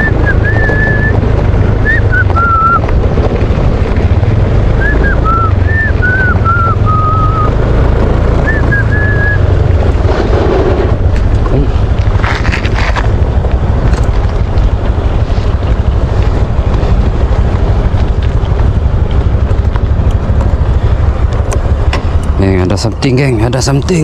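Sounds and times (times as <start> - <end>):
whistled notes: 0.0 - 1.1, 1.8 - 2.8, 4.8 - 7.5, 8.4 - 9.5
wind rumble on microphone: 0.0 - 24.0.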